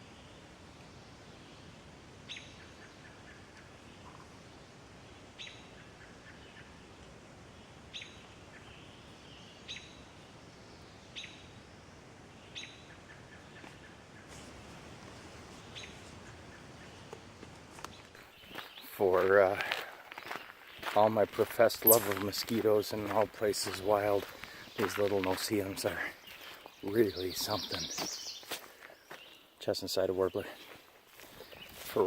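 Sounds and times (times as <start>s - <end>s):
faint bird chirps: 24.4s - 29.6s.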